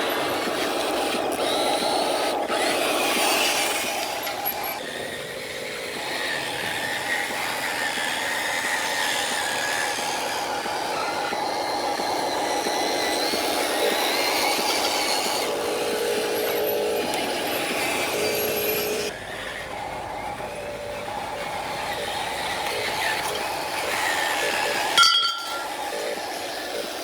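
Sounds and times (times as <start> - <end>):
toy motor whining: 0.0 - 27.0.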